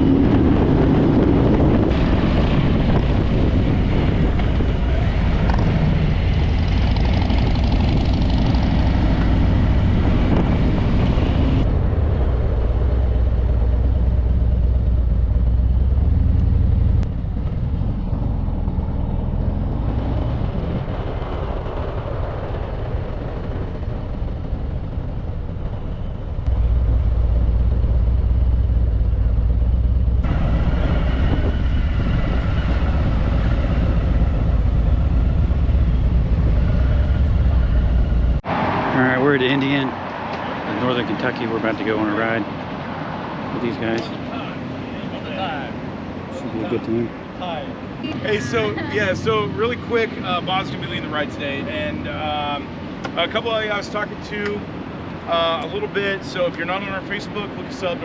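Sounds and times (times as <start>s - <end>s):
wind noise on microphone: 0.0s - 13.8s, 28.7s - 38.5s
motorcycle engine rumbling: 0.0s - 42.9s, 46.0s - 58.0s.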